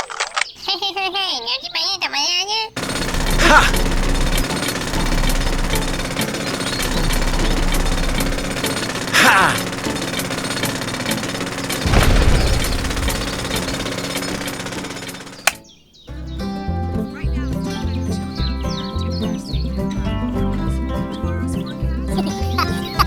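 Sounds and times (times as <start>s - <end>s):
rapid mechanical rattling: 2.8s - 15.7s.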